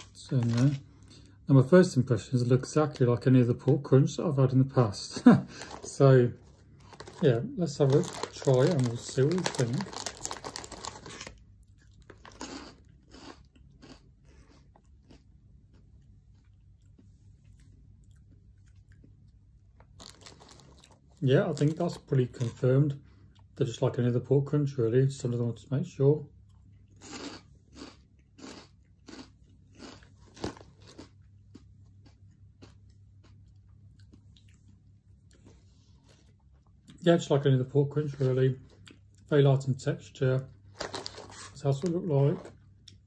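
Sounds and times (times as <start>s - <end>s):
crunchy snack chewing: 5.5s - 22.0s, 26.5s - 36.6s, 40.8s - 43.0s.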